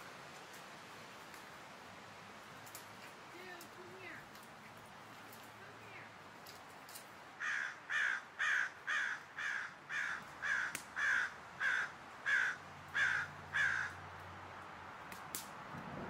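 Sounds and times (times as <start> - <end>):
bird calling: 7.4 - 14.0.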